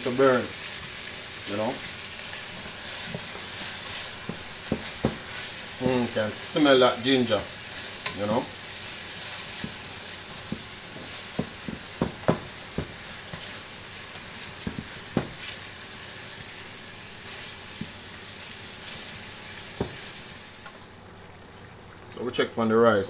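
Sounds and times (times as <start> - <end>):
vegetables sizzling in pan: 0.0 - 21.2
utensil knocking against pan: 4.2 - 6.0, 10.4 - 13.4, 14.6 - 15.4.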